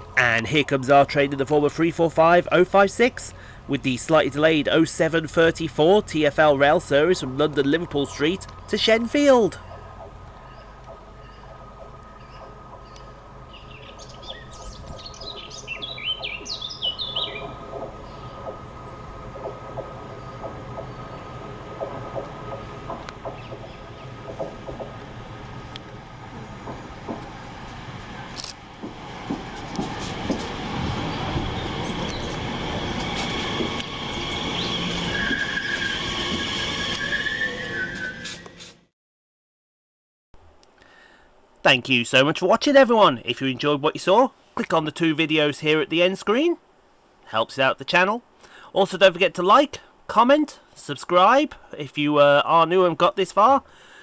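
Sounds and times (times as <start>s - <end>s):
steady low hum: 0.0s - 35.1s
train rail rumble: 0.0s - 38.7s
wheels clicking over rail joints: 4.0s - 36.4s
songbird chirping: 6.9s - 25.1s
high steady whine: 17.3s - 38.6s
high-pitched squeal: 29.9s - 38.9s.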